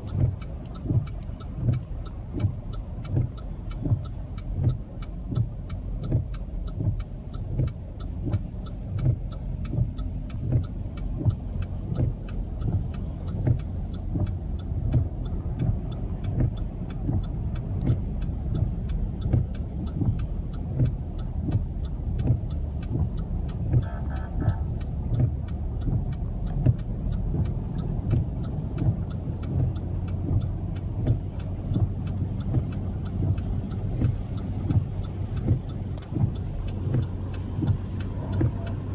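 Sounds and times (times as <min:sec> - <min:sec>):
car engine rumbling: 0:00.0 - 0:38.9
quick regular ticking: 0:00.0 - 0:38.9.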